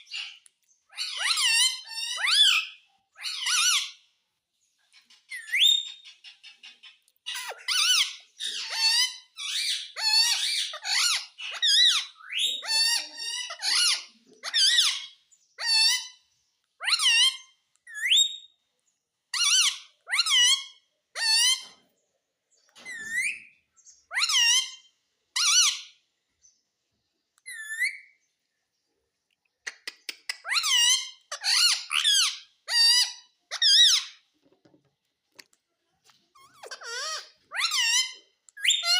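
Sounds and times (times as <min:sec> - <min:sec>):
parrot shrill calls: 0:00.9 - 0:04.0, 0:07.3 - 0:16.2, 0:16.8 - 0:18.4, 0:19.4 - 0:21.6, 0:24.1 - 0:26.0, 0:30.4 - 0:34.2, 0:36.4 - 0:38.9.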